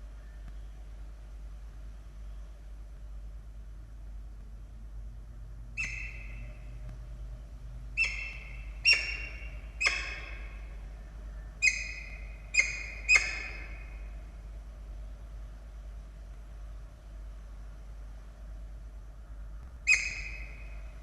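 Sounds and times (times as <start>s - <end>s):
falcon calling: 5.8s - 6.7s, 8.0s - 10.9s, 11.6s - 14.2s, 19.8s - 21.0s.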